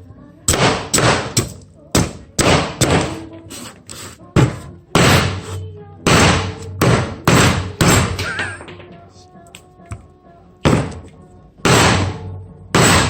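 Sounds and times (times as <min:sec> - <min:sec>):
knife striking firewood: 0:00.5 - 0:03.3.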